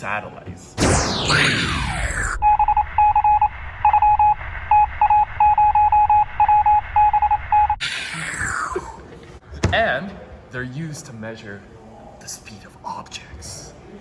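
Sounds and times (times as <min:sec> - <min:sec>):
radio beeping like morse code: 0:01.3 - 0:07.8.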